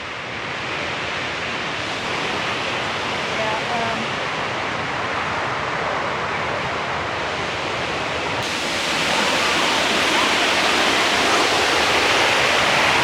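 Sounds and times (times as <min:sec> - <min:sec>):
whitewater pouring over rocks: 0:08.4 - 0:13.0.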